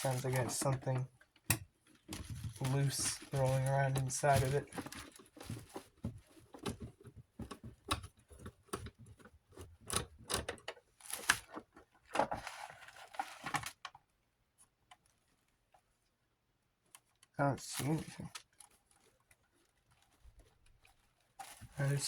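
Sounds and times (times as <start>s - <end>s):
plastic pieces rattling inside fan: 0.0s - 1.0s, 2.0s - 6.0s.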